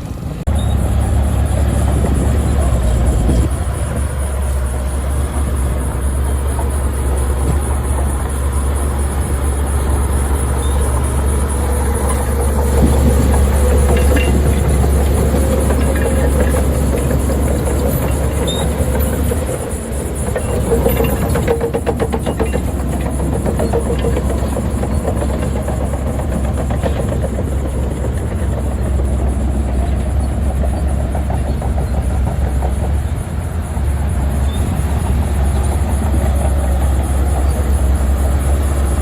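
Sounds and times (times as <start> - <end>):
diesel machinery rumbling: 0.0 - 39.0
rapid metallic clatter: 0.4 - 39.0.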